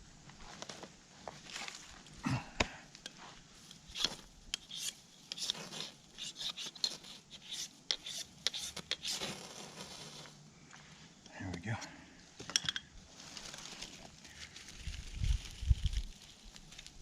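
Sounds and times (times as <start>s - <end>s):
knife scraping fire striker: 3.0s - 10.4s.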